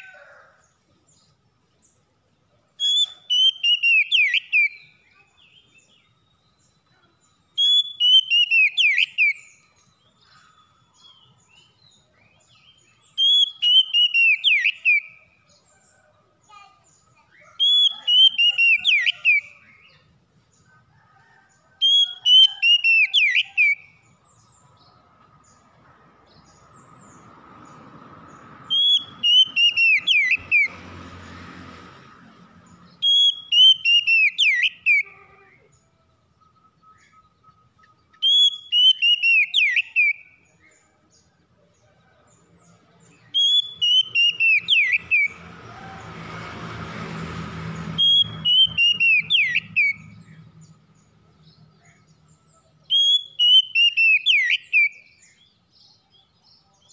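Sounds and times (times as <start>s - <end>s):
bird singing whistled notes: 2.7s - 15.7s, 17.0s - 20.1s, 21.8s - 24.8s, 28.6s - 30.7s, 32.9s - 35.1s, 35.8s - 40.7s, 43.1s - 45.4s, 48.0s - 56.9s.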